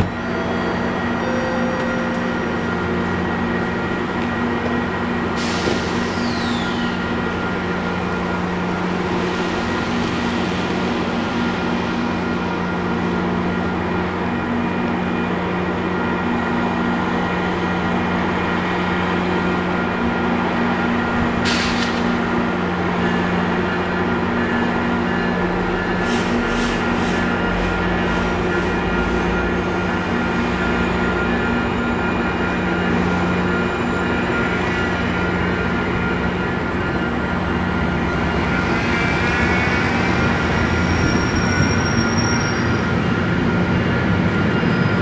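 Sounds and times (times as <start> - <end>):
air hiss with falling whistle: 5.6 - 6.9.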